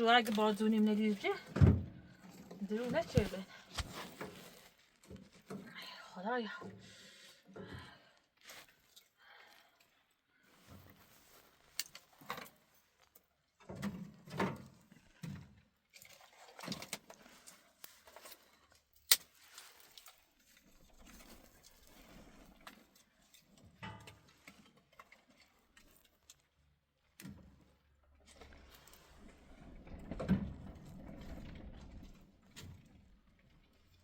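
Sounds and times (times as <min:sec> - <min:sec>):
objects knocking and clattering: 0:23.6 - 0:24.7.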